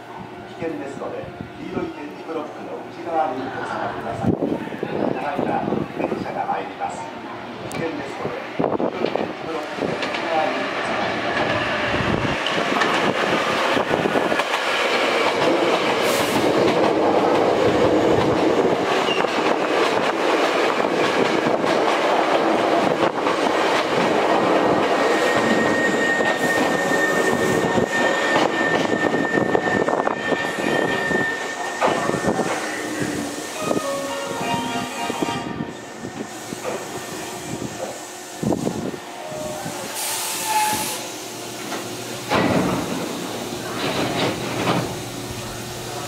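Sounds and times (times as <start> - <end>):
electric train rumble: 0.0 - 46.0
high squeal: 25.0 - 34.1, 39.2 - 41.0.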